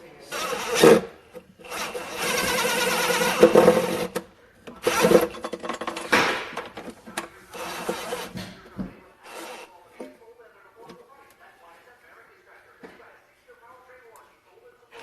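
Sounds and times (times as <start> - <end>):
power tool whirring: 0.3 - 4.2, 4.8 - 5.4, 7.5 - 8.4, 9.2 - 9.7.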